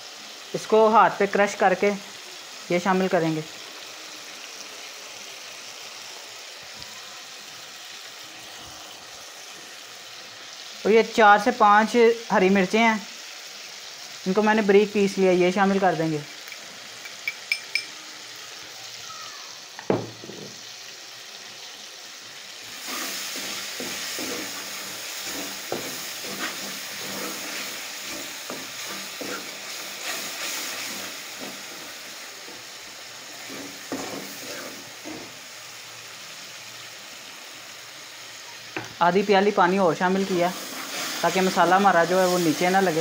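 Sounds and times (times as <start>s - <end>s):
masala sizzling in a pot: 0.0s - 43.0s
ladle scraping a pan: 22.7s - 35.3s.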